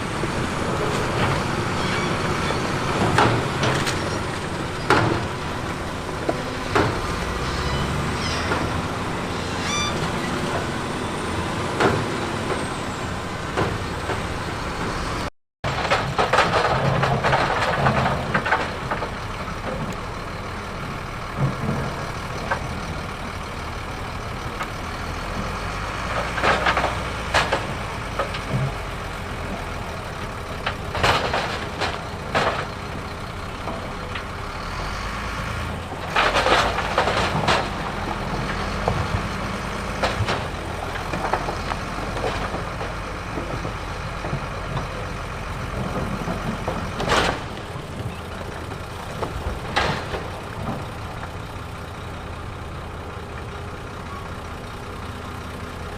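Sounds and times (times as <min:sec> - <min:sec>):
heavy diesel machinery running: 0:00.0 - 0:55.9
clattering and scraping: 0:00.4 - 0:14.4, 0:15.7 - 0:20.0, 0:25.4 - 0:34.3, 0:35.7 - 0:51.8.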